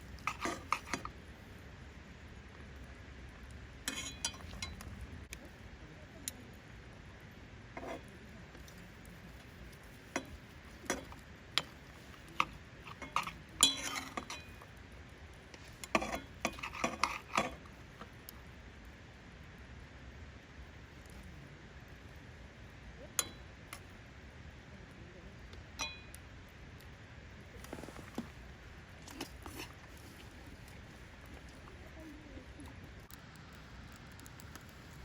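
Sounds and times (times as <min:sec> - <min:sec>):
utensils clinking on dishes: 0:00.2 - 0:01.1, 0:03.9 - 0:04.8, 0:10.1 - 0:14.6.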